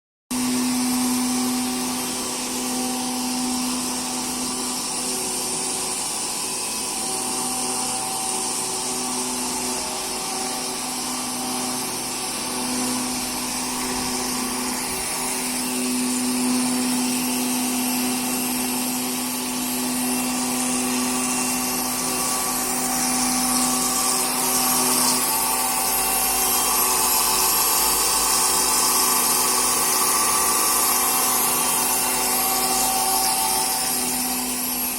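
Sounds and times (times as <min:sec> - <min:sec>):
stone-cutting machine hissing: 0:00.4 - 0:34.9.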